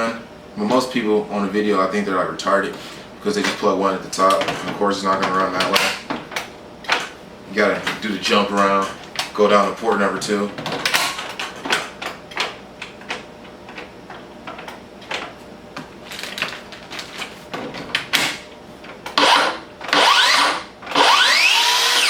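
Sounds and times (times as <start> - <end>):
saw motor whining: 19.2 - 22.0.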